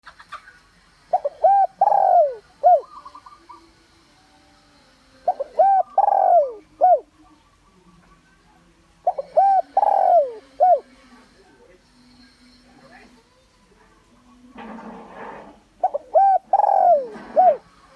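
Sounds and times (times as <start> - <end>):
dove cooing: 1.1 - 3.7, 5.2 - 7.2, 9.0 - 11.1, 15.8 - 17.9.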